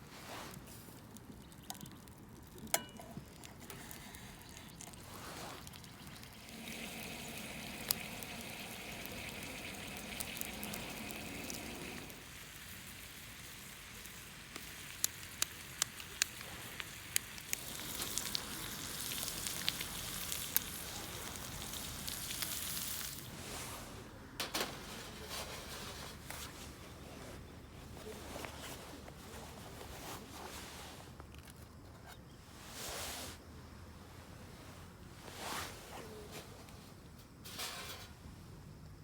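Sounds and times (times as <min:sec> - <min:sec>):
food sizzling in a pan: 0:06.4 - 0:23.4.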